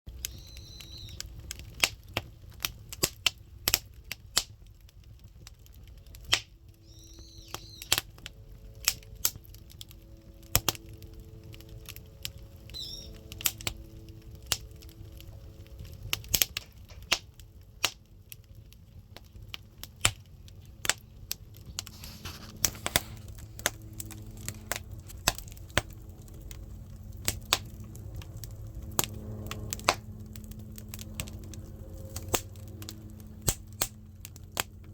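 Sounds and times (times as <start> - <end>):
firewood crackling: 0.1 - 34.9
low rumble of fire: 0.1 - 34.9
high chirps: 0.3 - 1.2, 6.8 - 8.0, 12.7 - 13.3.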